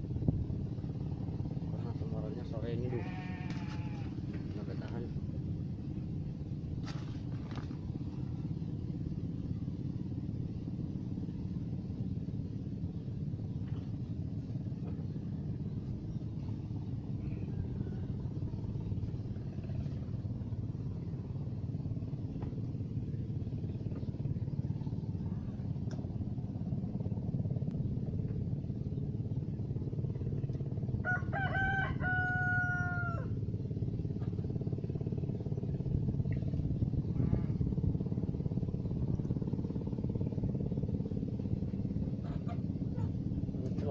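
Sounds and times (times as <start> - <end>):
low rumble: 0.0 - 43.9
rooster crowing: 31.0 - 33.4.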